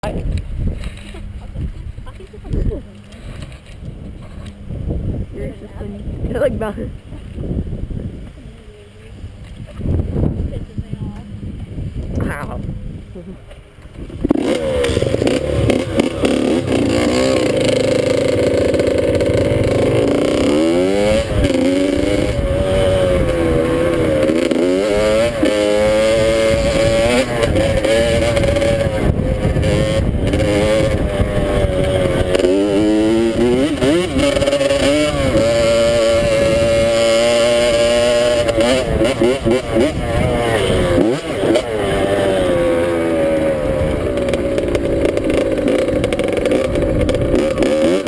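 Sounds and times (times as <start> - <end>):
dirt bike engine revving: 14.0 - 48.0.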